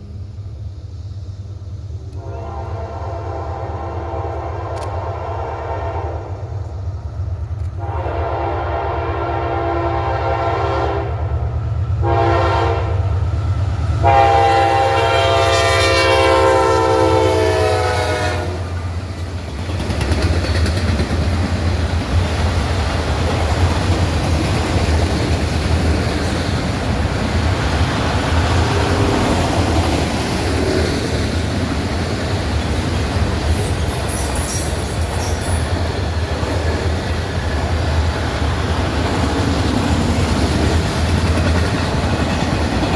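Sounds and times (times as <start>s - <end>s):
locomotive air horn blasts: 2.2s - 6.4s, 7.8s - 11.2s, 12.0s - 13.1s, 14.0s - 18.8s
high squeal: 33.6s - 35.8s.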